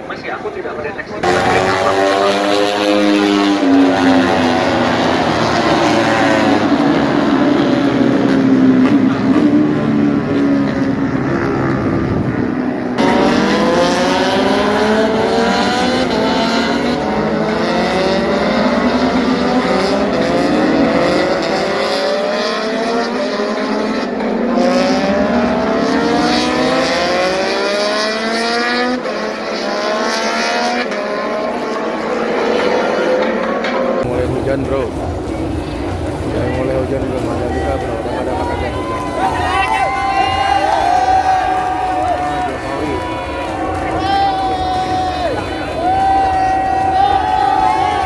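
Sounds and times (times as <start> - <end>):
racing motorcycles accelerating past: 1.2 - 39.4.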